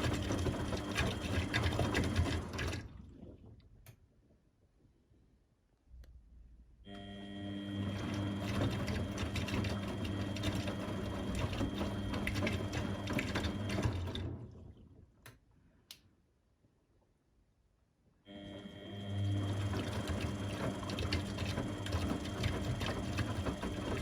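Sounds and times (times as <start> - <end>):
washing machine motor running: 0.0 - 3.0, 7.0 - 14.7, 18.3 - 24.0.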